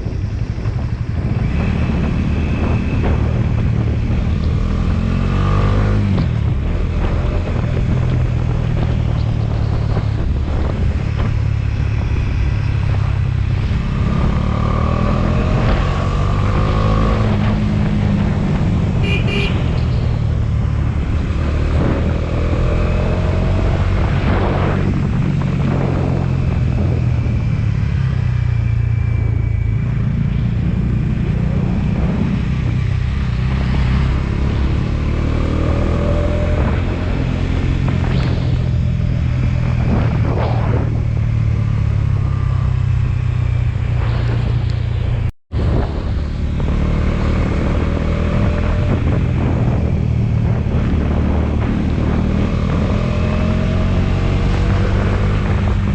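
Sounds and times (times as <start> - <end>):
motorcycle engine revving: 1.1 - 55.9
horn toot: 19.0 - 19.9.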